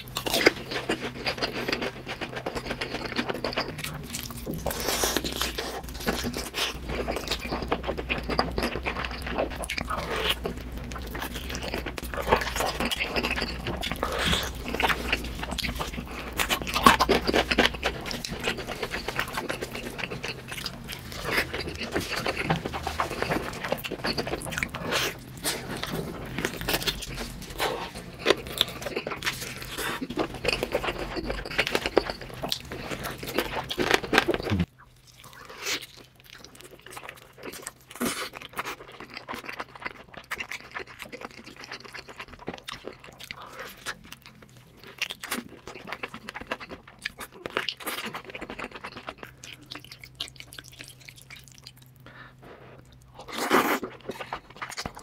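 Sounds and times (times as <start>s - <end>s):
chewing and crunching: 0.0s - 55.0s
wet chewing of noodles: 0.0s - 55.0s.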